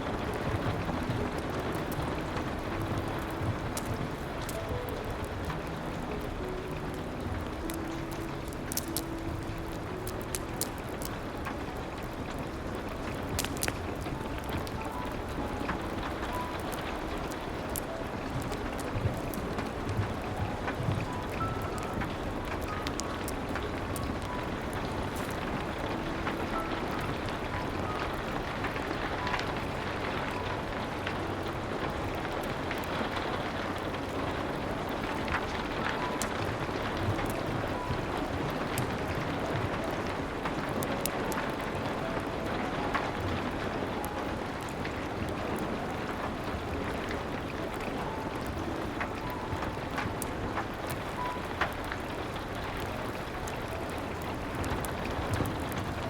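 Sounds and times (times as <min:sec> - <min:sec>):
rain hissing: 0:00.0 - 0:56.0
soft low piano tone: 0:00.0 - 0:56.0
wood fire crackling: 0:00.0 - 0:56.0.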